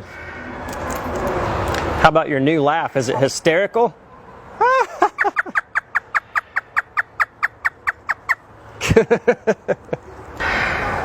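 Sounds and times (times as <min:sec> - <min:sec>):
parrot imitating laughter: 0:04.6 - 0:08.4.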